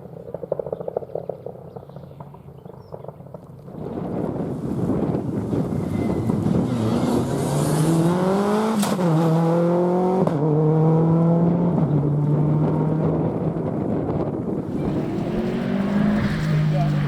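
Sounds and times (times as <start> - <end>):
rally car engine accelerating: 6.4 - 17.0.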